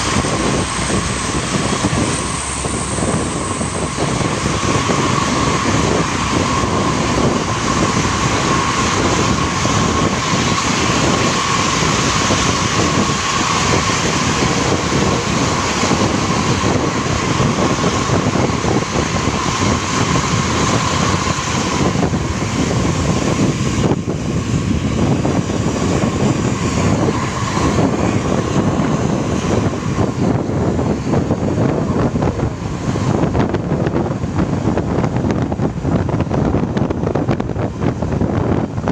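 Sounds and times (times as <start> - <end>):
bus diesel engine running hard: 0.0 - 38.9
high whine: 0.0 - 38.9.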